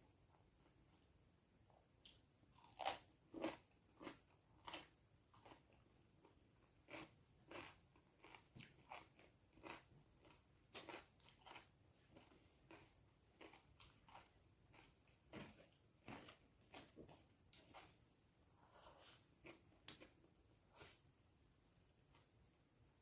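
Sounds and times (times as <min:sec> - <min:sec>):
person chewing and smacking: 0:02.0 - 0:18.2.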